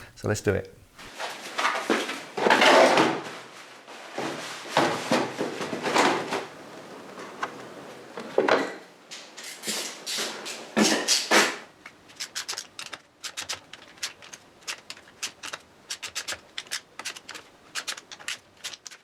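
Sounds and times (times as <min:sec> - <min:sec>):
tools scraping and knocking: 0:07.2 - 0:19.0.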